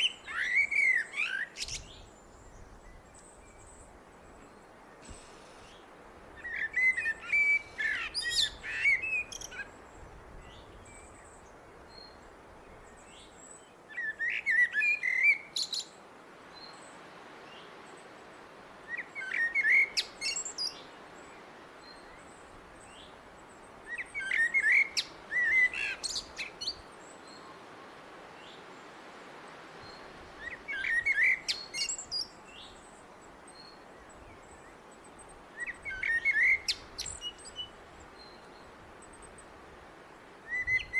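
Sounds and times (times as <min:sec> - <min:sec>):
blackbird singing: 0:00.0 - 0:02.6, 0:06.4 - 0:09.7, 0:13.9 - 0:15.9, 0:18.9 - 0:20.9, 0:23.9 - 0:27.4, 0:30.4 - 0:32.8, 0:35.6 - 0:37.7.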